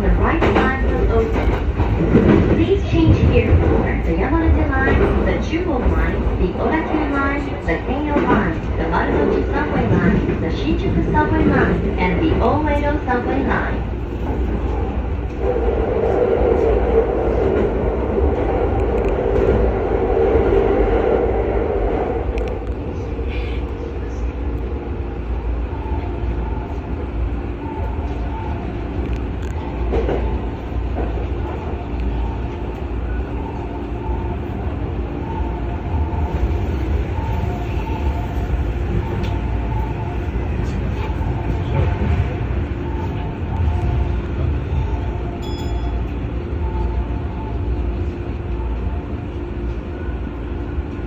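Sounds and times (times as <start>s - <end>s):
electric train rumbling: 0.0s - 51.0s.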